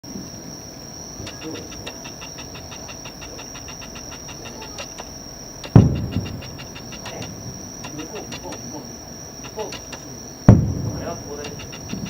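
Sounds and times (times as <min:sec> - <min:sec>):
high-pitched whine: 0:00.4 - 0:12.0
quick regular ticking: 0:00.4 - 0:12.0
firework shell booming: 0:09.5 - 0:12.0.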